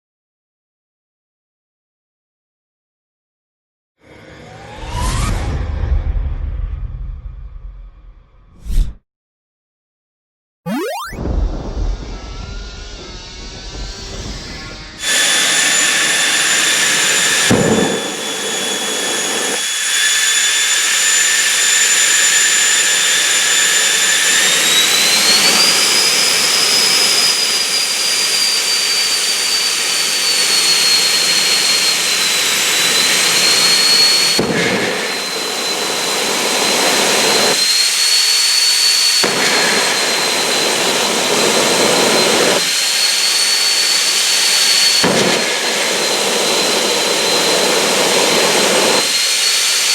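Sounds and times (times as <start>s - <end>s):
turbine engine high-pitched whine: 4.1s - 5.6s, 10.7s - 49.9s.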